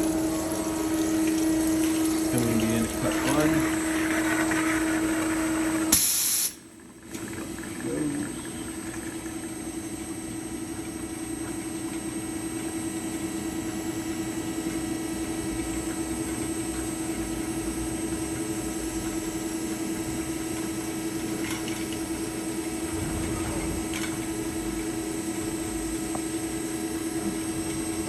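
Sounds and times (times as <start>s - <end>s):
band saw machine hum: 0.0s - 6.0s, 19.8s - 28.0s.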